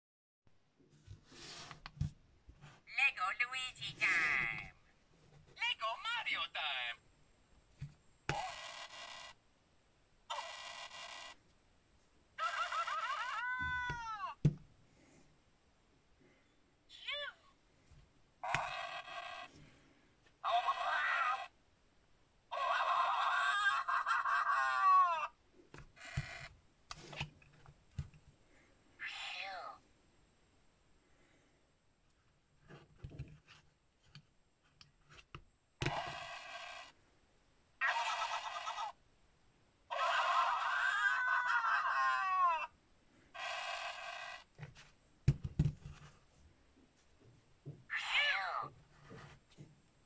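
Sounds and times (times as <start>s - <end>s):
toy speaker voice and effects: 2.9s - 4.7s, 5.6s - 7.0s, 8.3s - 9.4s, 10.3s - 11.4s, 12.4s - 14.3s, 16.9s - 17.5s, 18.4s - 19.5s, 20.4s - 21.6s, 29.0s - 29.8s, 35.8s - 36.9s, 37.8s - 39.0s
plastic knocks: 44.6s - 46.1s.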